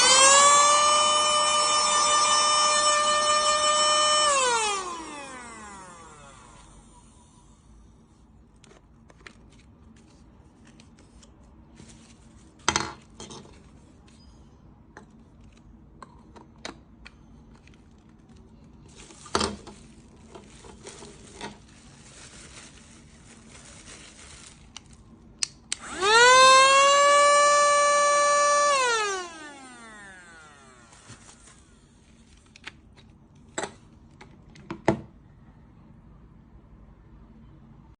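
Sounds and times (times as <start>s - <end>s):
handheld vacuum cleaner whine: 0.0s - 7.6s, 25.7s - 32.0s.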